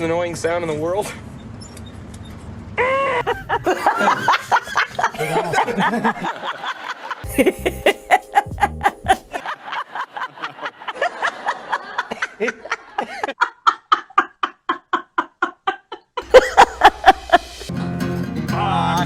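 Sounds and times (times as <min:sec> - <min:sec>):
woman laughing hard: 0:02.8 - 0:17.7.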